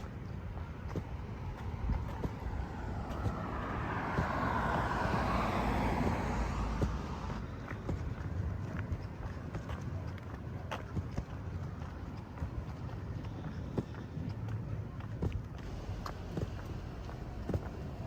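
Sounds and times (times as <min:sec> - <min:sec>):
footsteps on pavement: 0:00.0 - 0:18.0
car passing by: 0:00.8 - 0:09.0, 0:15.6 - 0:18.0.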